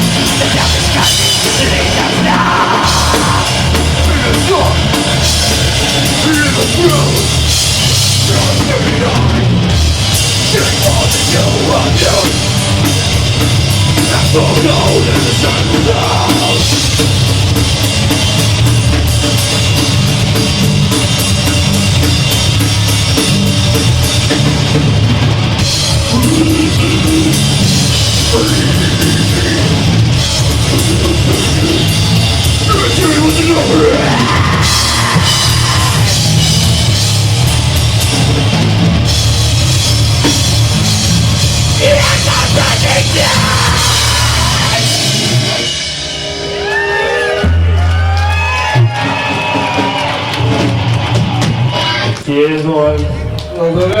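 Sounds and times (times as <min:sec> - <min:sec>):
harsh vocals: 0:00.0 - 0:17.6, 0:25.8 - 0:36.9, 0:40.7 - 0:45.9
distorted guitars and bass: 0:00.0 - 0:54.0
fast drums: 0:00.0 - 0:54.0.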